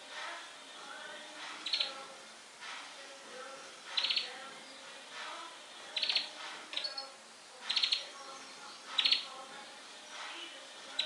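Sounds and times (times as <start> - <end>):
rapid high clicking bird notes: 1.6 - 2.0, 3.9 - 4.3
bird warbling song: 1.6 - 2.1, 3.5 - 5.0, 5.9 - 9.5, 10.1 - 11.0.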